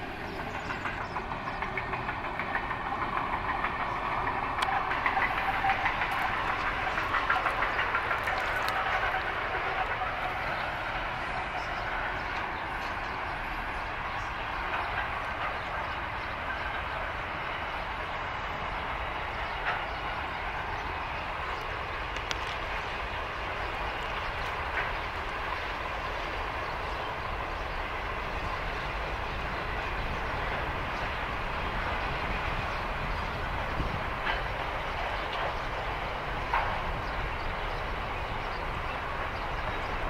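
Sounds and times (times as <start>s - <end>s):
wheels clicking: 0.0s - 18.1s
freight train wheels rumbling: 0.0s - 40.0s.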